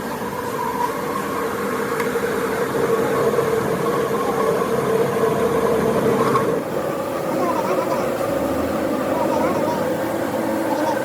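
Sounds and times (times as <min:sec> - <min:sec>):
machine humming: 0:00.0 - 0:11.0.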